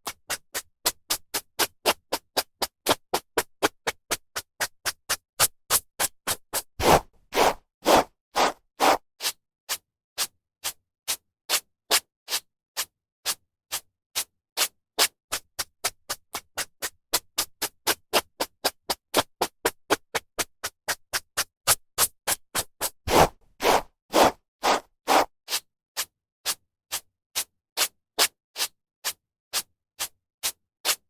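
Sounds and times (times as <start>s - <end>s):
hairbrush strokes through hair: 6.8s - 9.0s, 23.1s - 25.3s.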